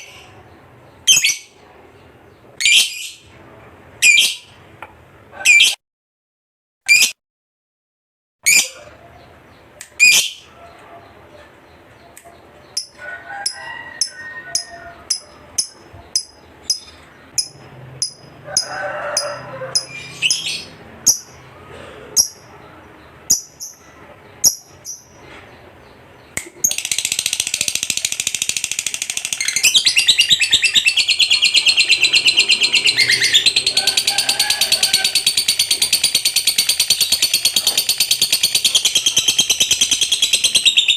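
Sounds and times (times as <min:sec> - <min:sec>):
bird chirping: 0:08.4 - 0:21.6, 0:22.2 - 0:40.9
rapid bird chattering song: 0:14.0 - 0:21.4, 0:22.2 - 0:40.9.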